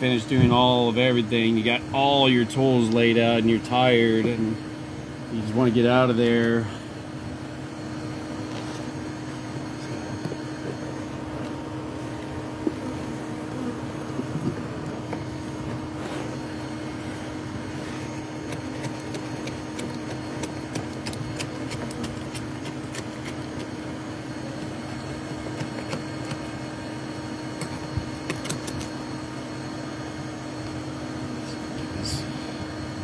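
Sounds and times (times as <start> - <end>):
steady low hum: 0.0 - 33.0
hand tools clicking and scraping: 18.0 - 23.8.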